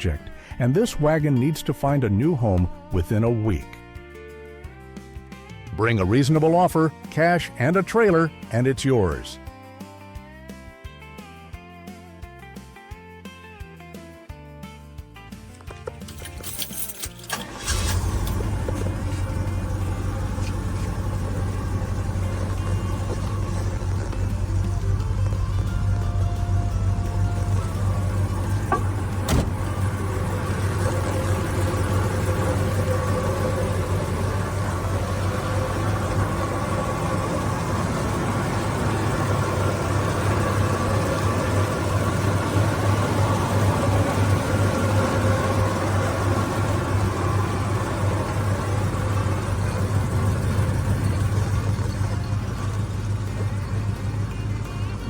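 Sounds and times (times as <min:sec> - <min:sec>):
car engine idling: 0:15.6 - 0:55.0.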